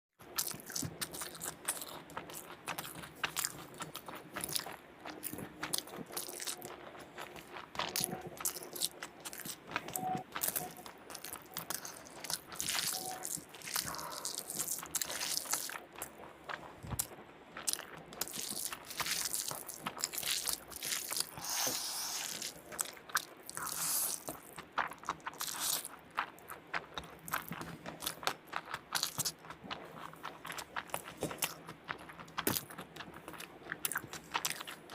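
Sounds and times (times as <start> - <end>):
person eating crunchy food: 0.2 - 34.9.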